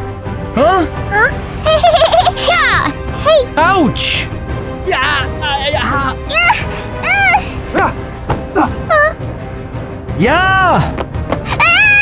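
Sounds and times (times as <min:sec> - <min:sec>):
background music: 0:00.0 - 0:12.0
high-pitched cries of effort: 0:06.3 - 0:07.9, 0:08.6 - 0:09.2.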